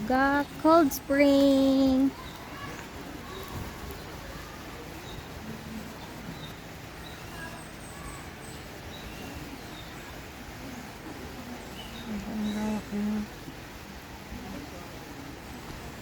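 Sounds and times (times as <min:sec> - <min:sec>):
person's voice: 0:00.0 - 0:02.1
small birds chirping: 0:00.0 - 0:13.8
rain falling: 0:00.0 - 0:16.0.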